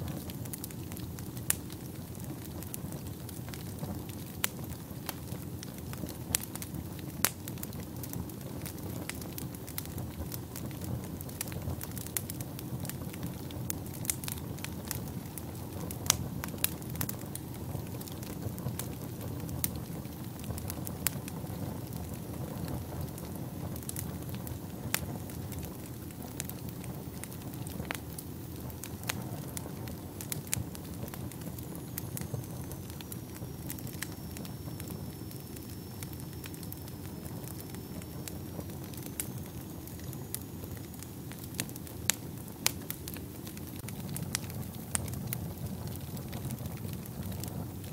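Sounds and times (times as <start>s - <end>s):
fire crackling and popping: 0.0s - 47.9s
fire rumbling in fireplace: 0.0s - 47.9s
faint high whistle: 31.8s - 41.1s.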